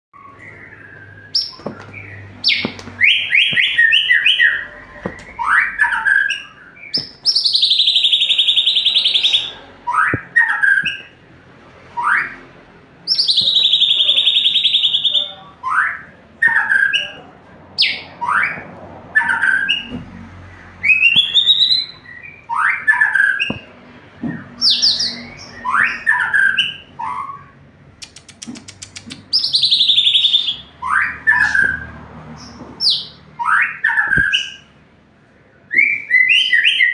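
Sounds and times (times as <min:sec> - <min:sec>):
bird singing whistles and rasps: 0:00.2 - 0:11.1, 0:13.1 - 0:17.2, 0:20.8 - 0:23.7, 0:28.1 - 0:31.9, 0:35.7 - 0:36.9.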